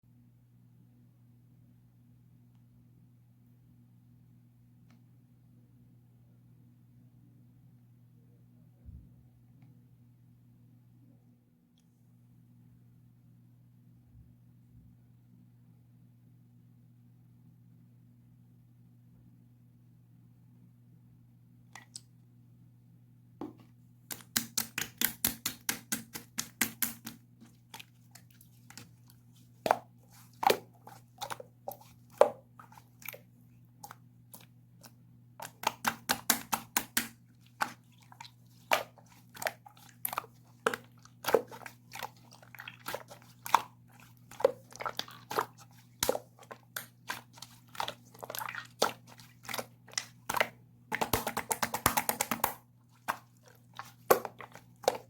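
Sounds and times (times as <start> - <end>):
faint low hum: 0.0 - 55.0
slime clicking and popping: 35.4 - 37.8, 44.4 - 55.0.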